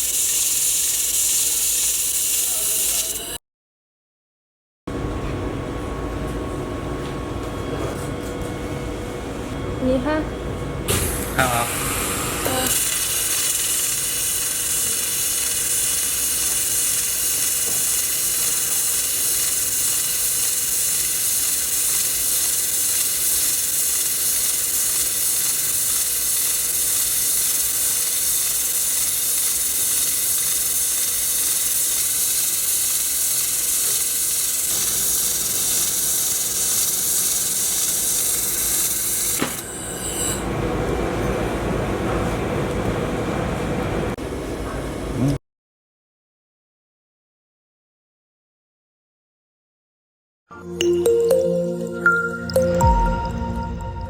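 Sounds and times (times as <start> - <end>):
laser welding machine hissing: 0.0 - 3.4, 10.9 - 40.4.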